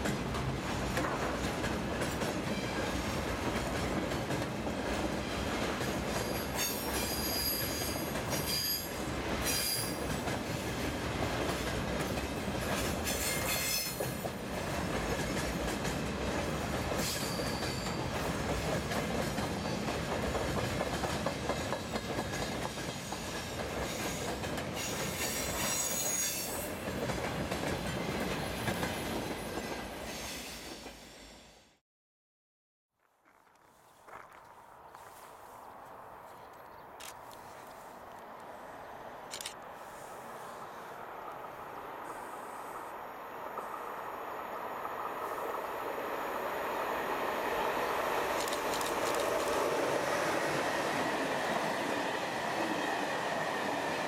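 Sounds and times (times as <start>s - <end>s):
train wheels rumbling on rail: 0.0s - 31.4s, 37.0s - 54.0s
high-pitched wheel squeals: 6.4s - 8.9s.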